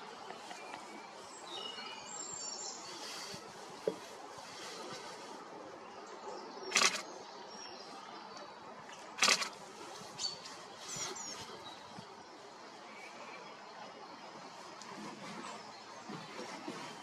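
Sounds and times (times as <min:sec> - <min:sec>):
small birds chirping: 0:00.2 - 0:14.0
rustling: 0:06.7 - 0:07.1, 0:09.2 - 0:11.5.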